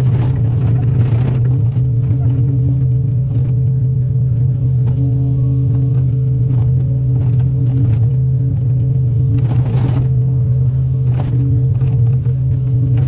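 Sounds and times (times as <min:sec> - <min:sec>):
crackling and scraping: 0:00.0 - 0:13.0
excavator diesel engine running: 0:00.0 - 0:13.0.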